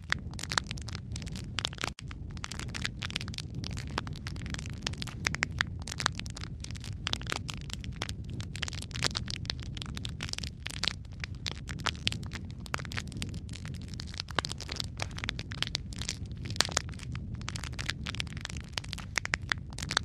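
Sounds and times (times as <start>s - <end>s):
low rumble of flame: 0.0s - 20.0s
wood fire crackling and popping: 0.0s - 20.0s.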